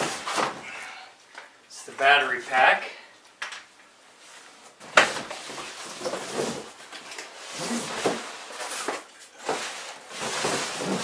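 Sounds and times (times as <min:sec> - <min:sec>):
packaging rustling and scraping: 0:04.2 - 0:11.0.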